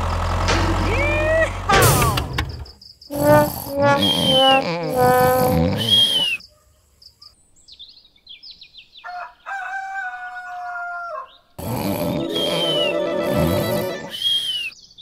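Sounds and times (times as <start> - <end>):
cartoon snoring with whistle: 3.1 - 6.4, 11.6 - 14.7
rooster crowing: 9.0 - 11.3
bird chirps: 12.3 - 15.0.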